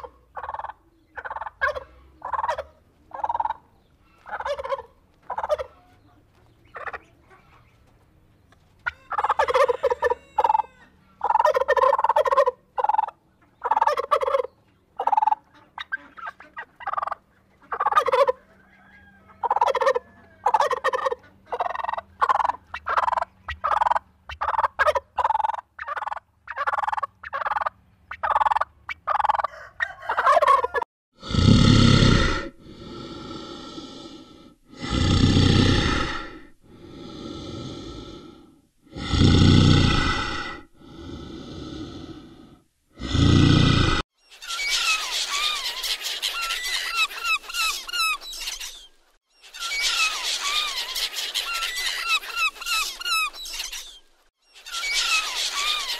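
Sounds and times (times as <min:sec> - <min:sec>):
turkeys gobbling: 0:00.0 - 0:07.7, 0:08.8 - 0:30.8, 0:44.4 - 0:48.8, 0:49.5 - 0:53.9, 0:54.6 - 0:55.9
loud breathy rushing sound: 0:32.3 - 0:44.0.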